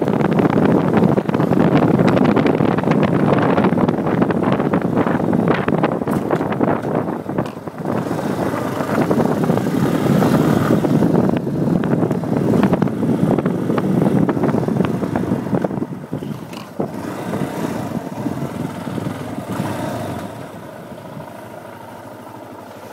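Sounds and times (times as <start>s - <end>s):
motorcycle engine running: 0.0s - 22.9s
clicking rattle in engine: 6.0s - 7.8s, 16.2s - 16.9s.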